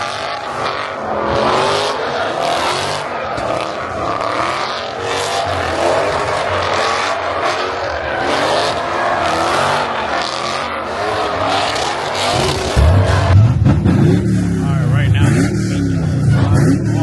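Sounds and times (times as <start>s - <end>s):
car engines revving hard: 0.0s - 17.0s.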